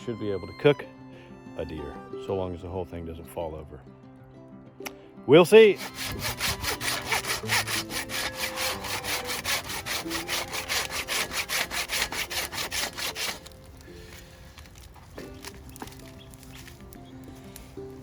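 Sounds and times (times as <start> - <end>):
hand saw cutting wood: 5.5 - 13.7.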